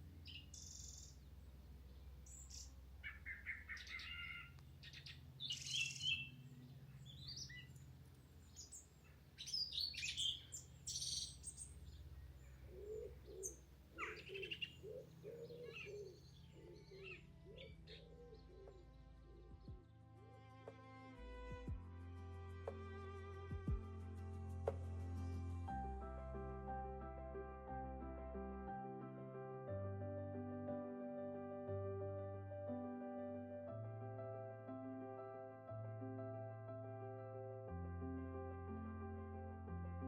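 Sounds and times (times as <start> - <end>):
birds chirping and singing: 2.3 - 7.8, 8.4 - 19.7.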